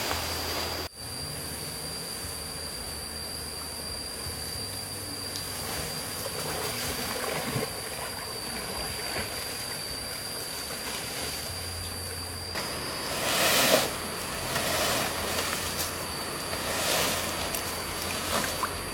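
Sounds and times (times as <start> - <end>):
stream water rushing: 0.0 - 0.9, 12.6 - 18.9.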